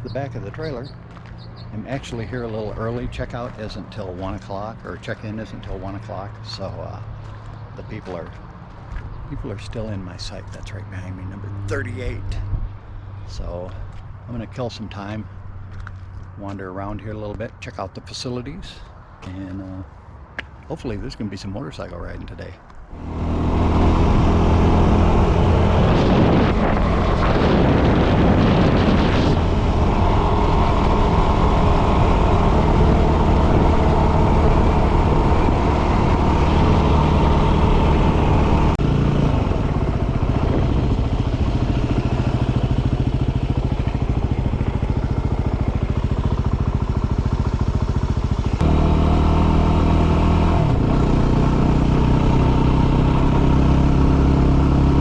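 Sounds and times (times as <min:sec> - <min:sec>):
motorcycle engine running: 0:00.0 - 0:14.2, 0:22.9 - 0:55.0
steady rushing noise: 0:22.9 - 0:49.5.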